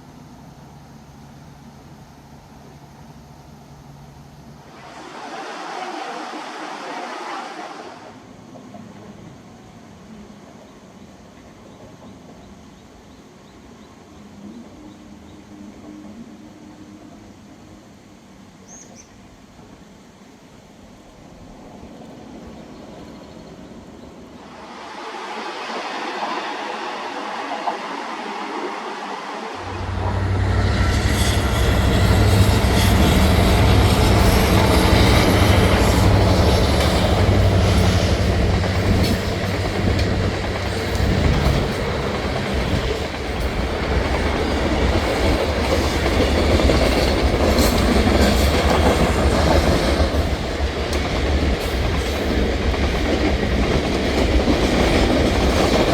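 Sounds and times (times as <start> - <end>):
diesel locomotive low rumble: 29.6 - 55.9
train wheels clattering over rails: 29.6 - 55.9.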